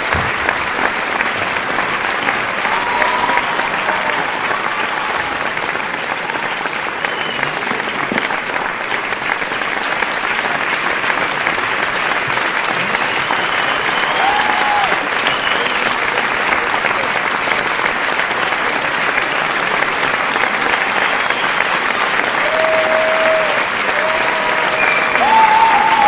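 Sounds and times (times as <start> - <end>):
crowd applauding: 0.0 - 26.0.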